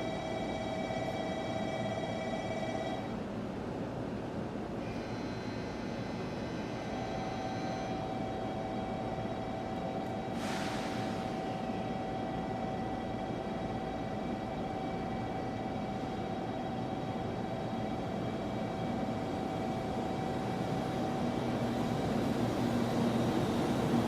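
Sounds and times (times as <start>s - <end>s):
train mechanical hum: 0.0s - 24.0s
high steady whine: 4.8s - 22.0s.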